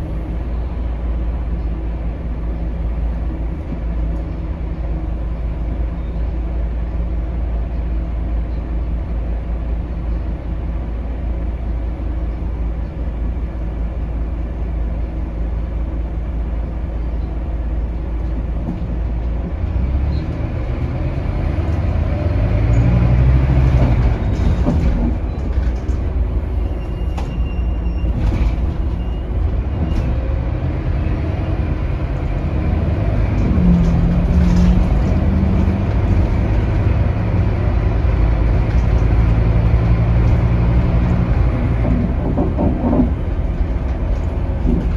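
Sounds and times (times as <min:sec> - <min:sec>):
bus diesel engine drone: 0:00.0 - 0:44.9
bus body knocks and rattles: 0:03.3 - 0:06.4, 0:16.7 - 0:44.9.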